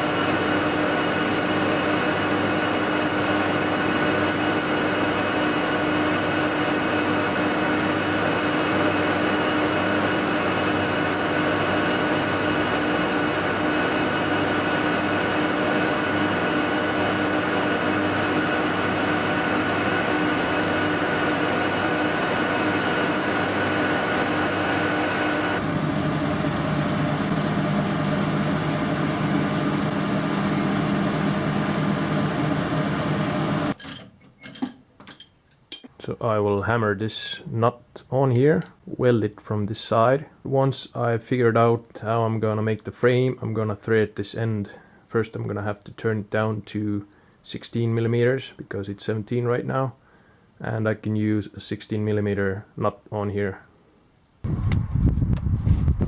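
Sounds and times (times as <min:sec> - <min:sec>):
machine humming: 0:00.0 - 0:33.8.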